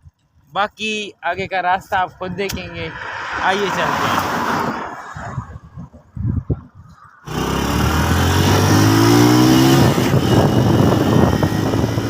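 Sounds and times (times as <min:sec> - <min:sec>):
rushing noise: 0:02.6 - 0:05.7
motorcycle engine accelerating: 0:07.3 - 0:12.0.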